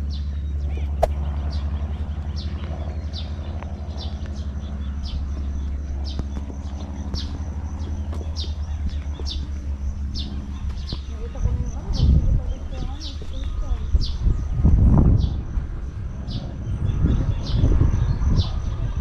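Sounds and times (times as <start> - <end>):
bird chirping: 0.0 - 14.6
steady low hum: 0.0 - 19.0.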